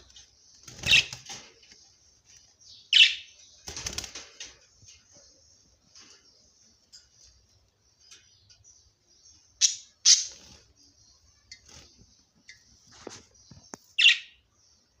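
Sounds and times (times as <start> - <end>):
sharp bird chirps: 8.1 - 14.5.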